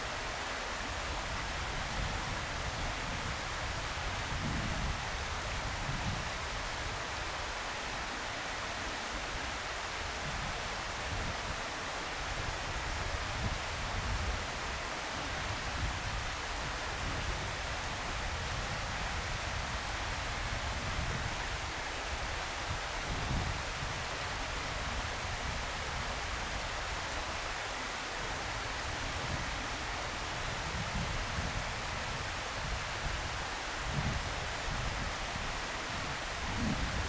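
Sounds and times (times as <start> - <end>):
wind buffeting microphone: 33.8 - 37.0.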